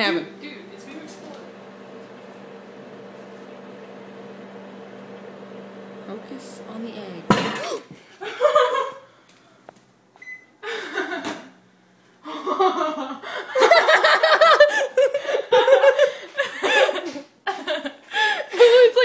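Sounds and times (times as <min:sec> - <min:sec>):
people laughing hard: 0:08.2 - 0:09.0, 0:10.6 - 0:11.5, 0:12.2 - 0:18.9.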